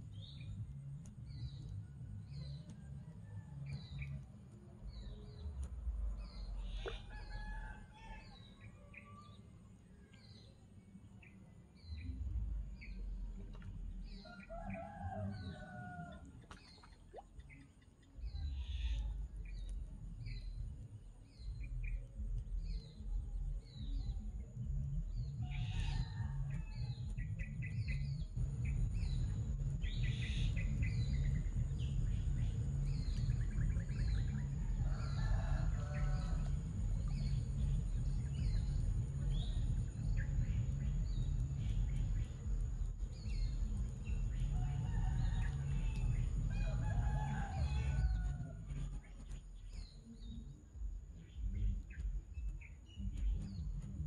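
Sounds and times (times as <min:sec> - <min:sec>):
low rumble: 0:11.8 - 0:16.4, 0:17.0 - 0:54.0.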